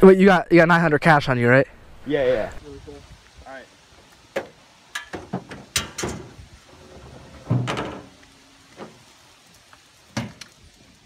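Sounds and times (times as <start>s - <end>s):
knocks and clunks: 4.3s - 8.2s.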